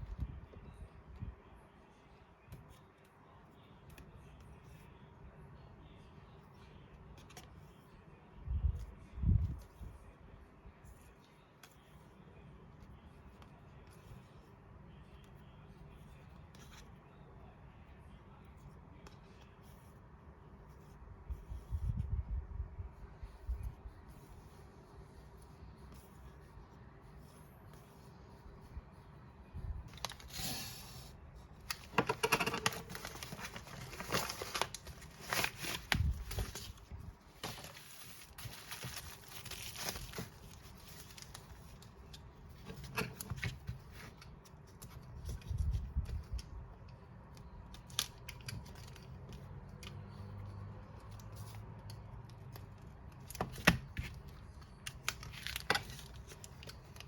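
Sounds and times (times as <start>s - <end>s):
packaging tearing and crinkling: 31.7s - 36.8s.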